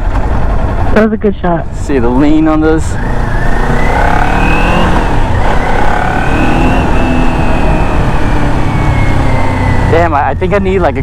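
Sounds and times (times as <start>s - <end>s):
motorcycle engine pulling: 2.0s - 10.1s.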